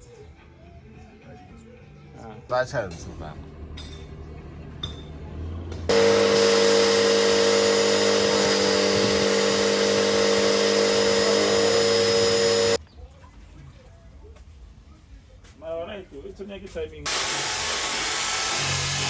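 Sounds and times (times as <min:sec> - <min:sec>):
cleaning machine motor whining: 0:05.9 - 0:12.8, 0:17.1 - 0:19.0.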